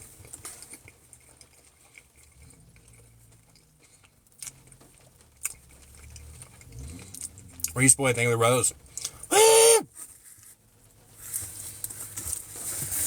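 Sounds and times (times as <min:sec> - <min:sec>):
person chewing food: 0:00.0 - 0:07.8, 0:08.8 - 0:09.5
light rain patter: 0:00.0 - 0:09.3, 0:10.0 - 0:13.0.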